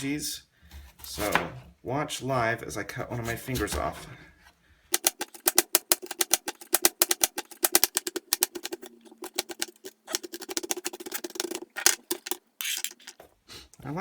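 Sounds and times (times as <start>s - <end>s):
knife chopping on cutting board: 5.0s - 12.4s.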